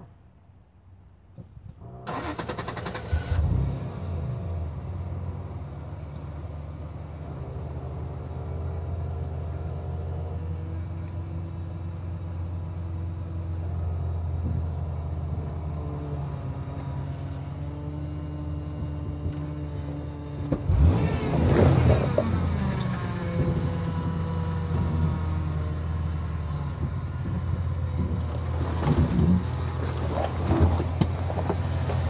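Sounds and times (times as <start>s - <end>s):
engine revving then idling: 1.8s - 6.0s, 15.4s - 30.9s
starter motor cranking: 1.9s - 3.8s.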